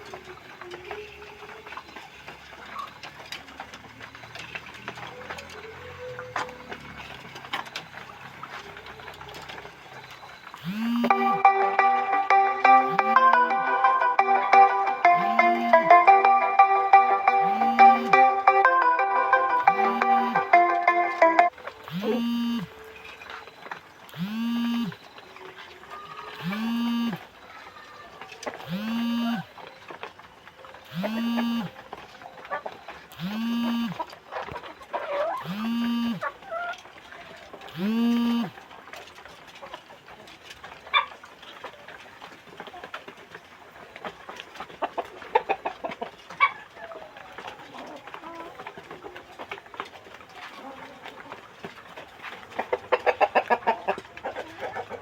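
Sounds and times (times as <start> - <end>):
chickens clucking: 0.0 - 55.0
machine low hums: 10.4 - 23.2, 24.1 - 25.4, 26.0 - 27.4, 28.6 - 29.7, 30.8 - 32.0, 33.1 - 34.1, 35.3 - 36.3, 37.7 - 38.6.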